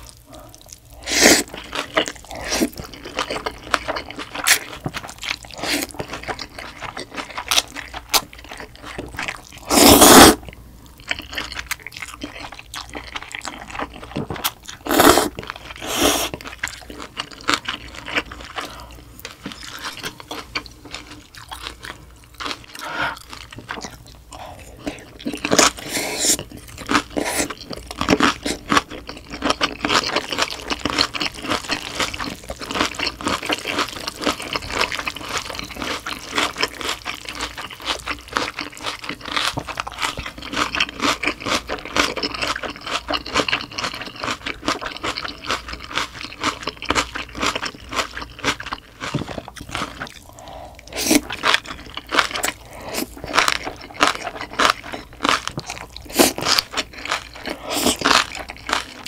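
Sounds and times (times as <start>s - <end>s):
chewing with wet mouth sounds: 0.0s - 59.0s
slurping noodles: 0.9s - 1.5s, 9.6s - 10.4s, 14.8s - 16.4s, 25.5s - 27.6s.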